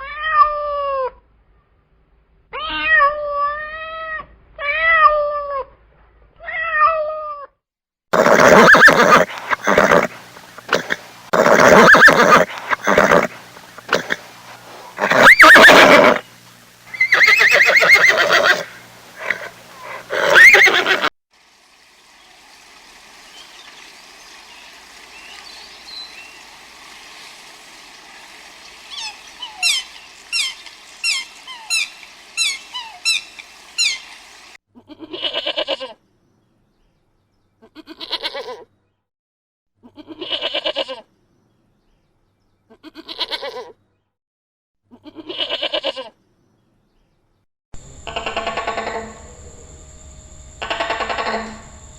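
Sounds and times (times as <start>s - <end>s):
horse whinnies: 8.1s - 16.3s, 16.9s - 21.1s
animal bleats: 8.2s - 16.3s, 16.9s - 21.1s, 34.8s - 36.0s, 37.6s - 38.7s, 39.8s - 41.1s, 42.7s - 43.8s, 44.9s - 46.2s, 48.0s - 49.3s.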